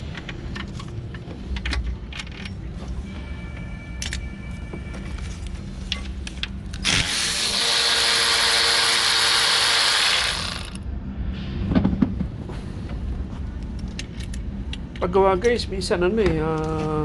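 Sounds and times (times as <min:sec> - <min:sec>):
power tool running: 0:06.8 - 0:10.8.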